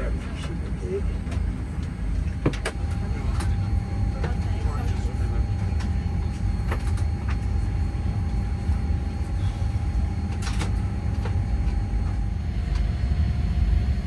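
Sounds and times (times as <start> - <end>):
airplane cabin rumble and hum: 0.0 - 14.0.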